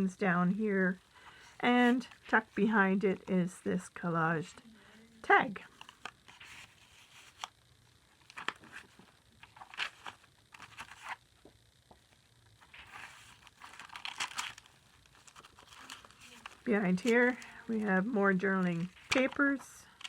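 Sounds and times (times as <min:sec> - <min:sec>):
paper rustling and crinkling: 0:05.7 - 0:07.5, 0:08.1 - 0:11.2, 0:12.6 - 0:20.0.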